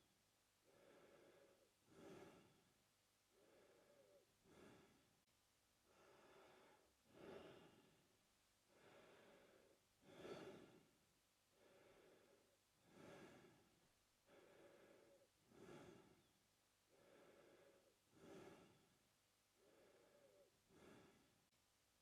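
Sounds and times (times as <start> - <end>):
man breathing through mouth: 0.7 - 2.6, 3.4 - 5.1, 5.9 - 8.0, 8.7 - 10.9, 11.6 - 13.7, 14.3 - 16.3, 16.9 - 18.9, 19.6 - 21.3.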